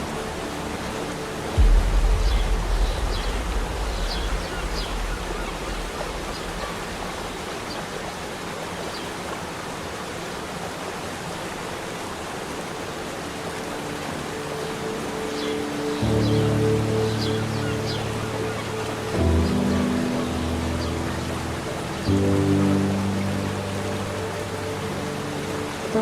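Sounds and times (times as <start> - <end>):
waterfall rushing: 0.0 - 26.0
low rumble: 1.5 - 7.7.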